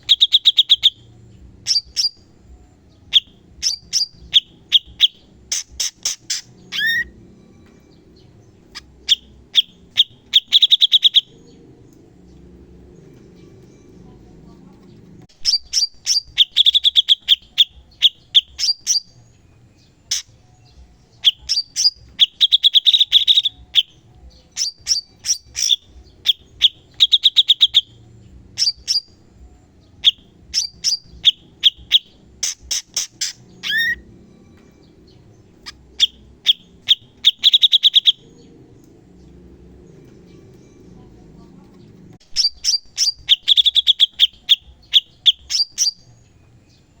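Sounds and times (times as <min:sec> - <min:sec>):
bird singing rapid notes: 0:00.0 - 0:47.0.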